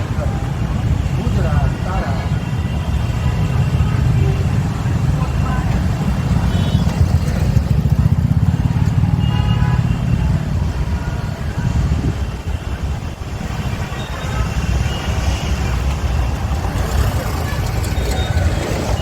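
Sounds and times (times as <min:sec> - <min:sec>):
rumble of passing cars and trucks: 0:00.0 - 0:19.0
faint voices: 0:10.2 - 0:19.0.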